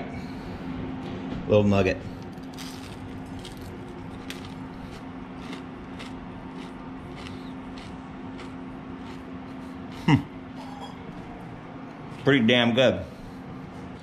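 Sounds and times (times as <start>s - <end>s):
steady low hum: 0.0s - 14.0s
chewing with soft crunches: 2.2s - 12.3s.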